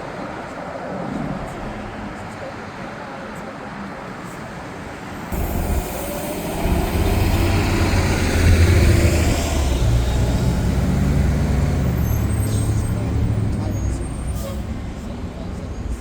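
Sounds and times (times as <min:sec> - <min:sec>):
jet airliner engines rumbling: 0:04.0 - 0:16.0.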